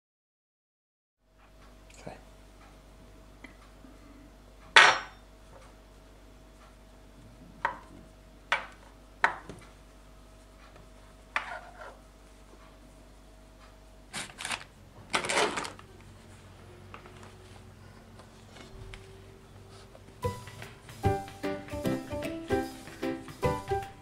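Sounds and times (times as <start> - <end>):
rustling and handling: 13.7 - 21.5.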